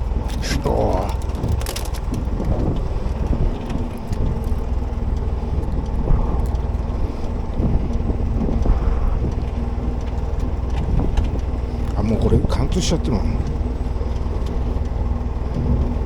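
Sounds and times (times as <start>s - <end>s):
boat engine idling: 0.0s - 16.0s
wind on microphone: 0.0s - 16.0s
small clicks and knocks: 0.3s - 12.0s.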